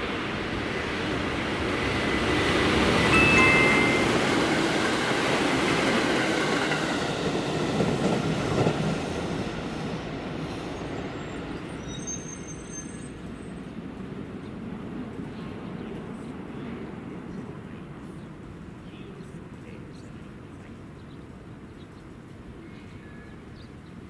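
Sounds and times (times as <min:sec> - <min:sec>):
electric train passing: 0:00.0 - 0:11.9
train wheels squealing: 0:10.5 - 0:13.5.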